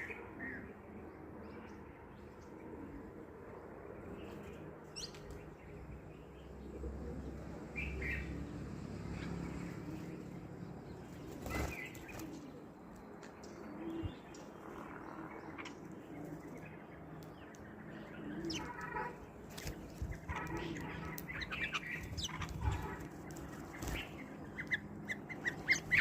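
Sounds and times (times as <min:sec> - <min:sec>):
birds flapping wings: 0:11.2 - 0:12.6, 0:18.5 - 0:26.0
bird cooing: 0:17.9 - 0:26.0.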